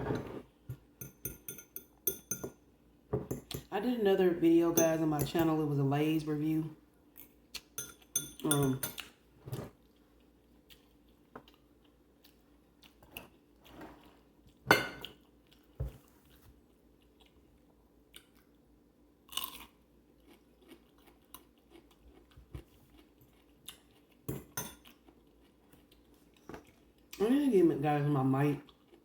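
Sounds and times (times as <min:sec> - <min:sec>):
food being bitten and chewed: 0:09.0 - 0:18.7, 0:19.3 - 0:27.2, 0:28.6 - 0:29.0.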